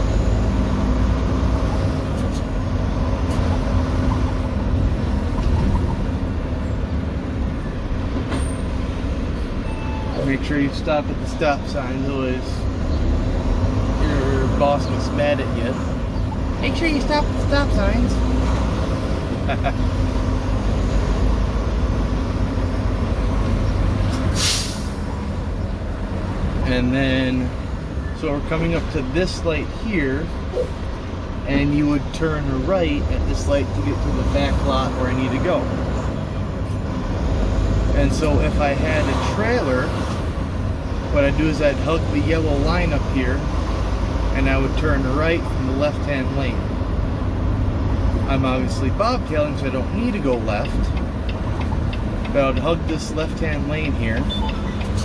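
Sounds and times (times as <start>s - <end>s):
diesel engine rumble: 0.0s - 55.0s
road noise: 0.0s - 55.0s
air brake hiss: 24.3s - 25.1s.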